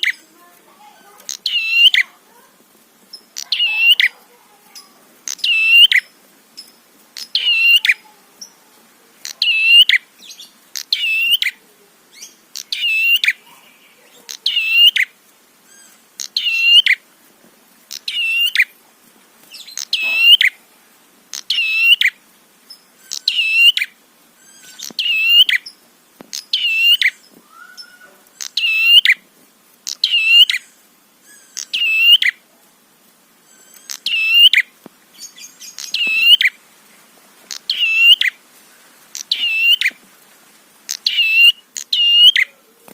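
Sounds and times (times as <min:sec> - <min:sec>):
bird singing chattering phrase: 0:00.0 - 0:02.2, 0:03.1 - 0:08.6, 0:09.2 - 0:11.6, 0:12.2 - 0:15.1, 0:15.7 - 0:17.0, 0:17.9 - 0:18.7, 0:19.6 - 0:20.6, 0:21.3 - 0:29.2, 0:29.9 - 0:30.7, 0:31.3 - 0:32.4, 0:33.5 - 0:36.6, 0:37.5 - 0:38.4, 0:39.1 - 0:40.0, 0:40.9 - 0:42.5.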